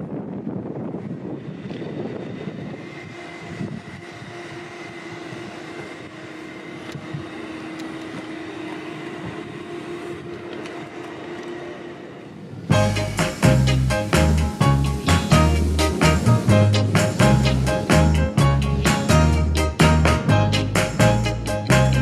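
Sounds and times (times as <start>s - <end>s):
jet engine whine: 0.0s - 22.0s
wind on microphone: 0.0s - 22.0s.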